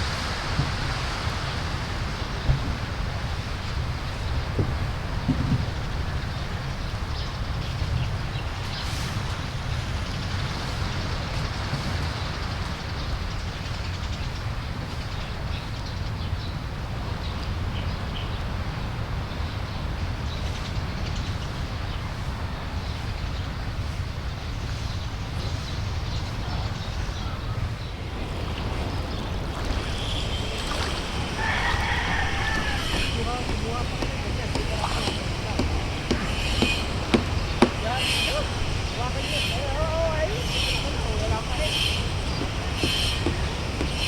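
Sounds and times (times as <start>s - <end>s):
surf rushing: 0.0s - 6.9s, 27.5s - 44.0s
wind rumbling on microphone: 0.0s - 44.0s
faint bird chirps: 25.4s - 44.0s.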